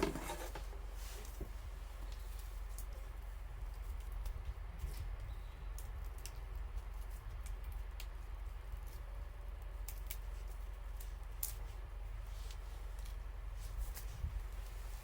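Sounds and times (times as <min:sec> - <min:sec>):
low fire rumble: 0:00.0 - 0:15.0.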